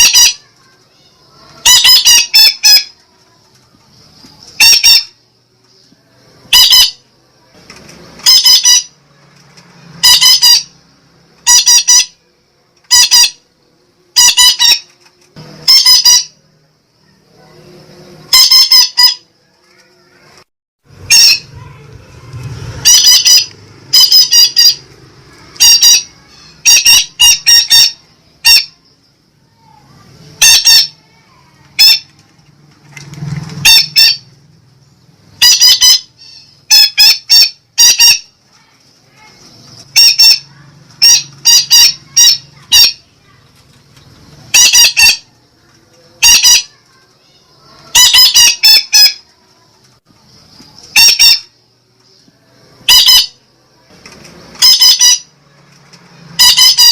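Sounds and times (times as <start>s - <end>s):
parakeet squawking: 0.0s - 0.6s, 1.2s - 3.0s, 4.6s - 5.2s, 6.5s - 7.0s, 8.2s - 9.0s, 10.0s - 10.8s, 11.4s - 12.2s, 12.9s - 13.5s, 14.1s - 14.9s, 15.6s - 16.4s, 18.3s - 19.2s, 21.0s - 21.8s, 22.7s - 28.8s, 30.4s - 31.2s, 31.8s - 32.1s, 33.6s - 34.3s, 35.4s - 38.4s, 39.1s - 43.4s, 44.5s - 45.3s, 46.1s - 46.8s, 47.6s - 49.2s, 50.9s - 51.5s, 52.9s - 53.4s, 54.6s - 55.3s, 56.4s - 56.9s.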